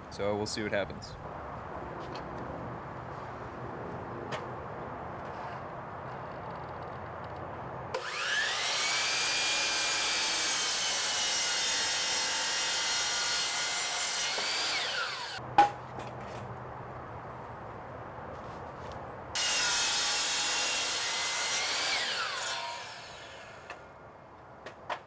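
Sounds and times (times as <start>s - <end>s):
power tool motor whine: 8.0s - 12.0s, 12.6s - 15.4s.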